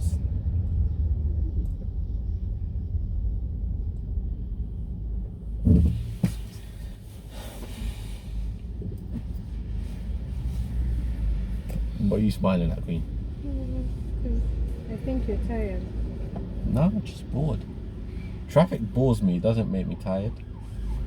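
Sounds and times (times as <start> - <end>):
car road rumble from inside: 0.0 - 21.0
loud thump: 5.6 - 6.4.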